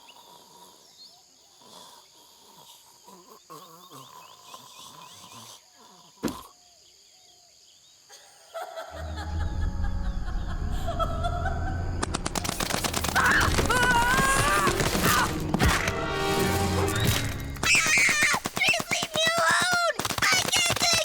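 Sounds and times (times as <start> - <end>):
rapid gunfire-like shots: 12.2 - 16.0, 17.5 - 21.0.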